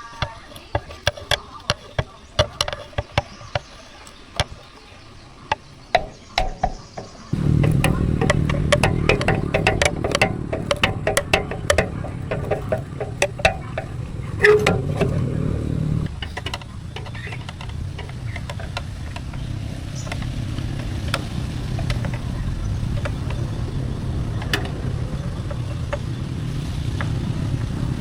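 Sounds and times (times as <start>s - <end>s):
sharp knocks: 5.5s - 27.2s
engine running with low rumble: 6.0s - 28.0s.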